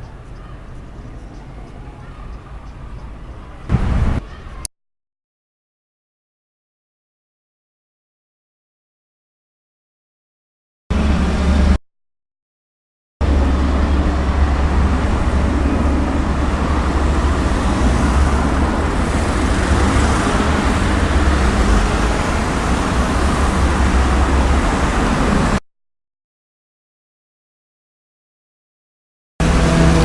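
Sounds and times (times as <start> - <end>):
military aircraft engine roar: 10.9 - 11.8, 13.2 - 25.6, 29.4 - 30.0.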